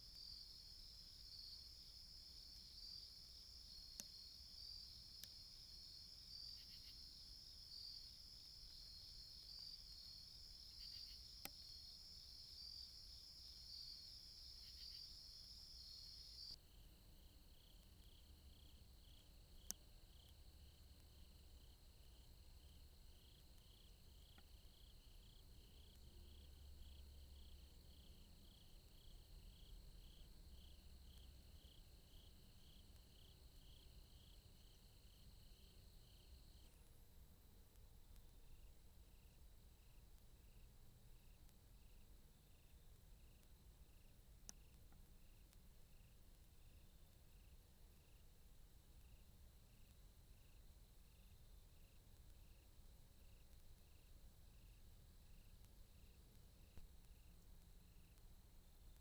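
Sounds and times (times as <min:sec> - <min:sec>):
crickets chirping: 0:00.0 - 0:36.8, 0:38.4 - 0:59.0
faint clicks: 0:02.0 - 0:09.9, 0:10.6 - 0:11.8, 0:22.6 - 0:26.1, 0:30.1 - 0:37.0, 0:37.7 - 0:38.7, 0:39.8 - 0:50.6, 0:51.2 - 0:59.0.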